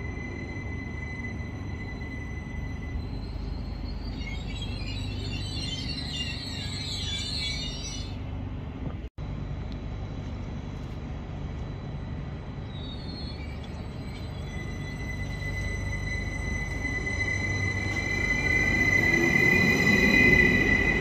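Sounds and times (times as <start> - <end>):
high chirping squeals: 0.0 - 8.2, 12.6 - 21.0
train wheels rumbling: 0.0 - 21.0.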